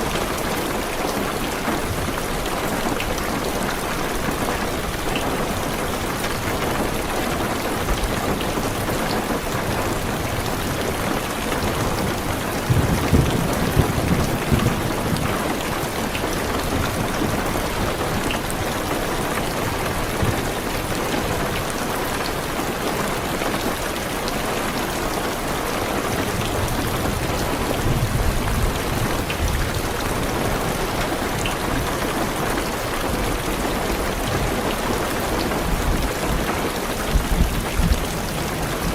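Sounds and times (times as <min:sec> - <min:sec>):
heavy rain on a car roof: 0:00.0 - 0:38.9
rolling thunder: 0:11.6 - 0:15.6.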